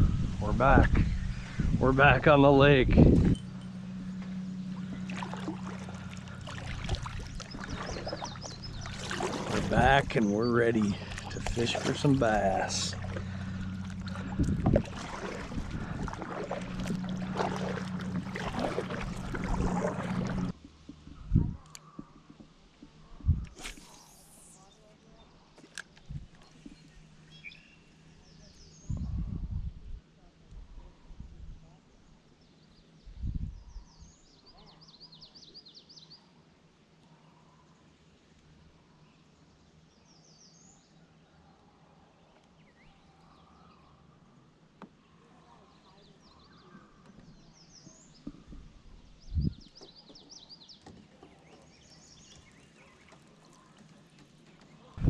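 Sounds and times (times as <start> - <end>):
steady low hum: 0.0 - 24.7
faint outdoor background: 0.0 - 55.0
songbird chirping: 3.2 - 14.6, 16.1 - 29.2, 37.0 - 55.0
water splashing and dripping: 4.8 - 20.6.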